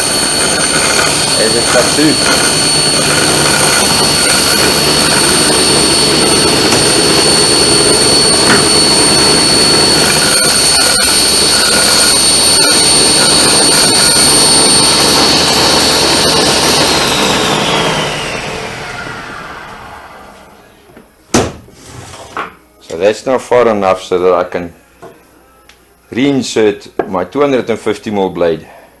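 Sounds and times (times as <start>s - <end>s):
table saw whining: 0.0s - 20.9s.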